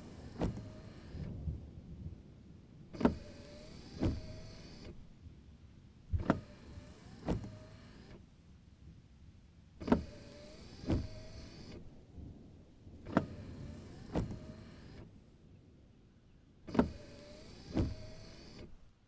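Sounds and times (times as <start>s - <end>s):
wiper motor whining: 0.0s - 1.5s, 2.9s - 5.2s, 6.1s - 8.2s, 9.8s - 12.0s, 13.0s - 15.2s, 16.7s - 19.0s
wiper blades sweeping wet glass: 2.9s - 5.0s, 9.8s - 11.9s, 13.0s - 15.2s, 16.7s - 18.8s.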